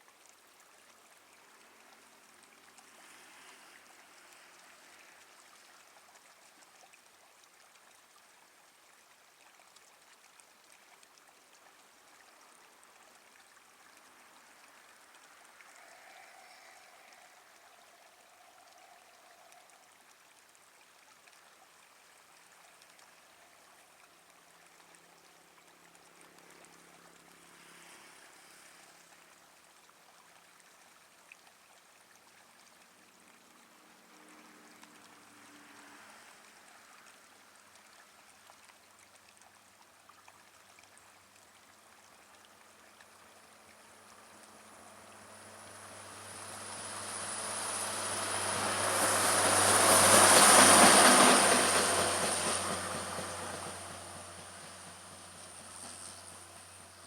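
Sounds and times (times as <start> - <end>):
faint low hum: 40.5 - 50.2
train passing: 43.4 - 57.0.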